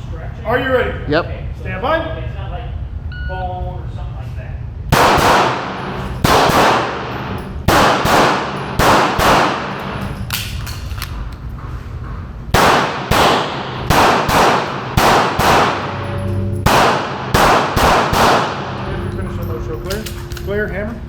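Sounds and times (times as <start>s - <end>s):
pistol shots with ringing echo: 4.9s - 11.2s, 12.5s - 20.5s.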